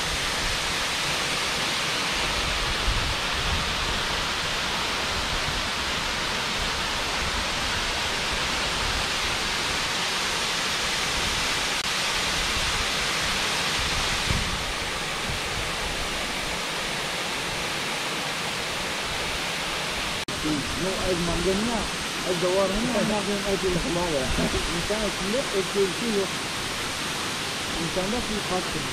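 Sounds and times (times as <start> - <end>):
waterfall roaring: 0.0 - 28.9.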